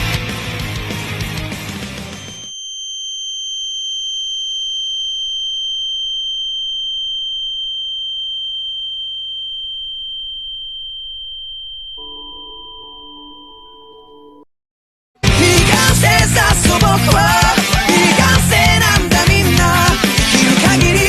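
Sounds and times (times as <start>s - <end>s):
high-pitched electronic sine tone: 2.0s - 14.5s
faint low gliding tone: 3.2s - 14.5s.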